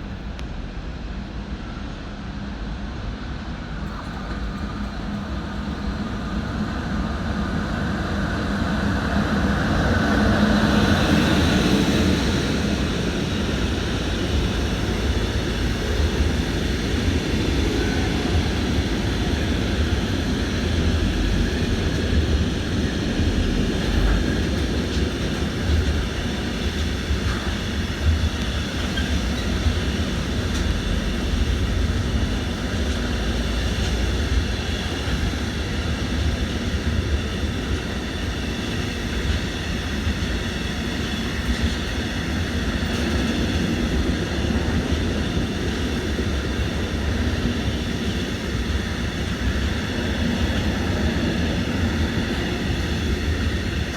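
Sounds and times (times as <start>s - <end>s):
brief train whine: 0.0s - 53.9s
train rumbling: 0.0s - 53.9s.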